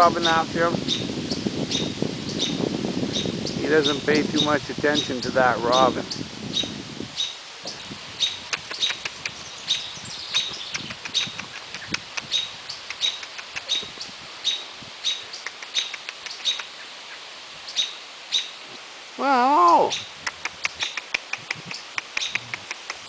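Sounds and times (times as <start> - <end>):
bird alarm calls: 0.2 - 16.9.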